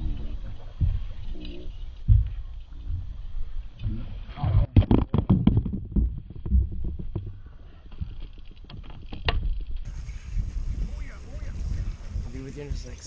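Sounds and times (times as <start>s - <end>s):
knocks and clatter of gear: 4.8s - 9.9s
low rumble: 9.7s - 13.0s.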